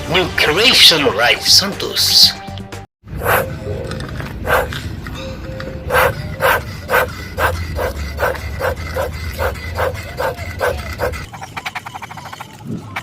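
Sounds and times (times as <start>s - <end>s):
dog barking: 3.2s - 3.5s, 4.4s - 4.7s, 5.9s - 11.3s.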